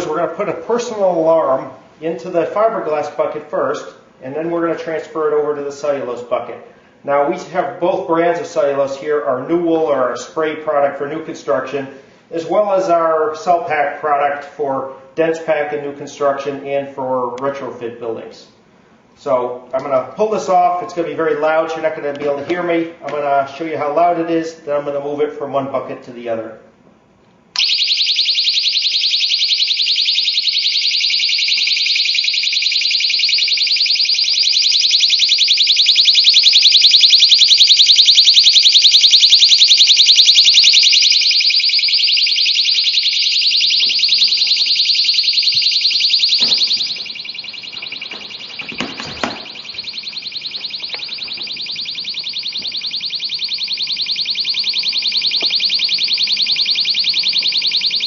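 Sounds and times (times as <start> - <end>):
personal alarm shrieking: 27.6 - 58.0
knocks: 46.4 - 47.0, 47.8 - 49.8.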